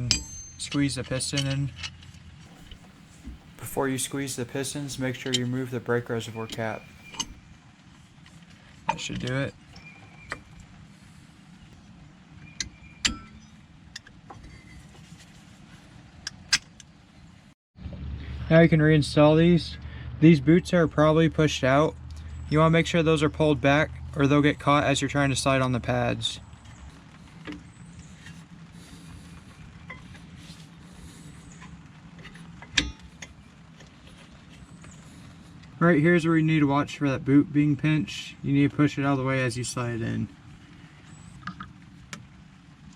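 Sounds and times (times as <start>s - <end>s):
metal clicks and scrapes: 1.4s - 7.4s
low steady hum: 2.5s - 7.4s
metal tools clinking: 2.6s - 7.4s.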